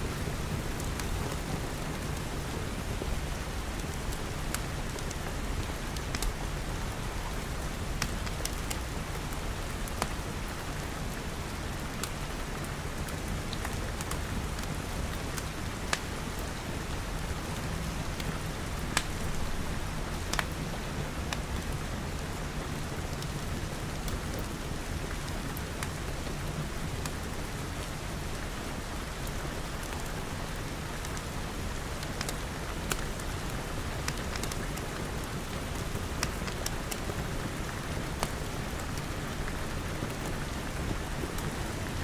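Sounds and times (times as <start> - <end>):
rain falling on glass: 0.0 - 42.0
wood fire crackling: 0.3 - 10.5, 11.2 - 16.5, 17.4 - 21.7, 29.7 - 42.0.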